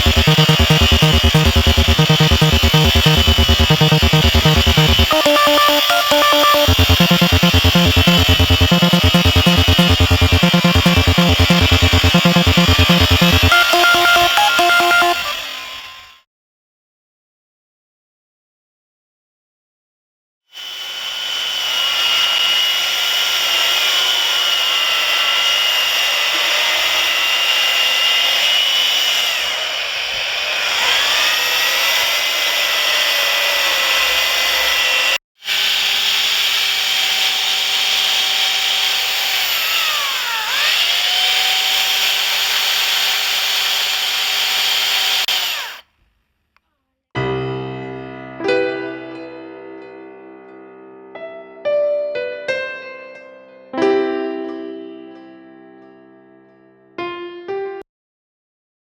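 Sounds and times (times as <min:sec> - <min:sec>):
chainsaw cutting wood: 0:20.6 - 0:46.0.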